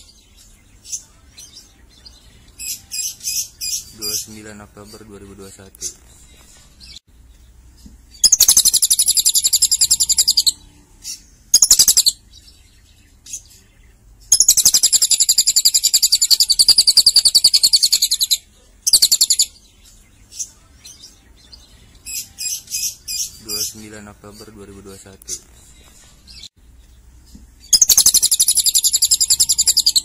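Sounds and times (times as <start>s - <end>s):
lovebird singing high trills: 8.1s - 12.2s, 14.3s - 19.6s, 27.6s - 30.0s
bird chattering notes: 8.2s - 10.6s, 11.5s - 12.2s, 14.3s - 19.5s, 27.7s - 30.0s.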